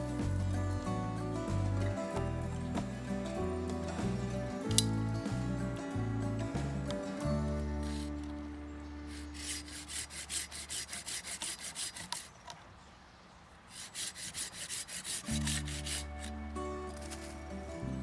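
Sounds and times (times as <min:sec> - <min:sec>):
hand saw cutting wood: 0:07.8 - 0:08.2, 0:09.0 - 0:12.5, 0:13.7 - 0:17.4.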